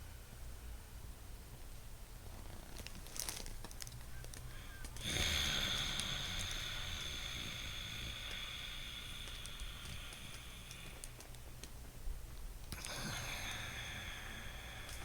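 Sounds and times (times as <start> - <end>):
breath through the nose: 4.5 - 11.5, 12.8 - 15.0.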